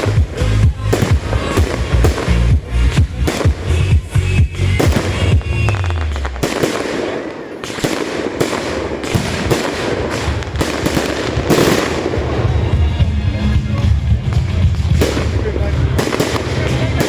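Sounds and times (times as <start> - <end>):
music bass: 0.0 - 6.6, 10.6 - 17.0
fireworks crackling and banging: 0.0 - 17.0.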